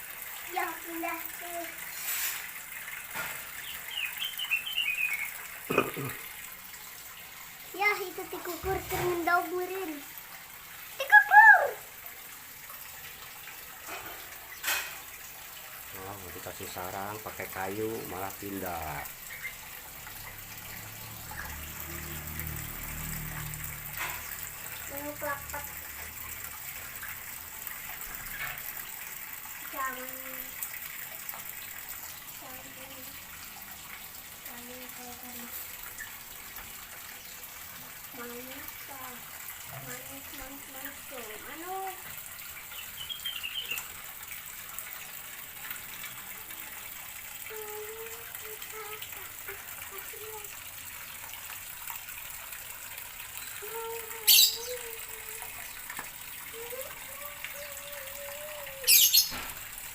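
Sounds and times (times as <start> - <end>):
running water rushing: 0.0 - 59.9
birds twittering: 3.6 - 5.4, 42.7 - 43.9, 54.3 - 54.8, 58.9 - 59.4.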